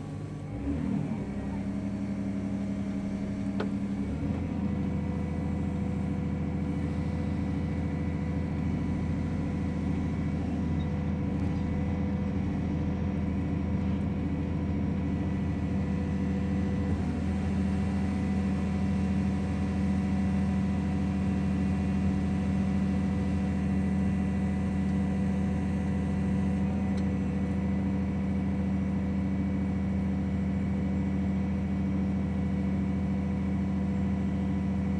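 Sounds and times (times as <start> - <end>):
construction machine engine hum: 0.0 - 34.9.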